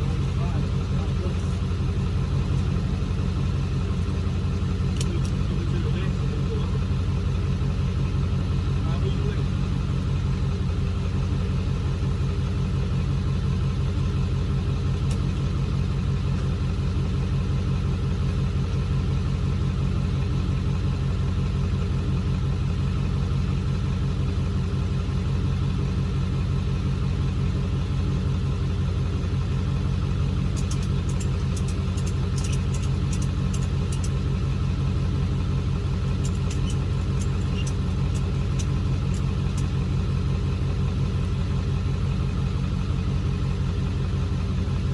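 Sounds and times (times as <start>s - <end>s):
car engine running: 0.0s - 44.9s
quick sharp ticks: 30.6s - 34.2s.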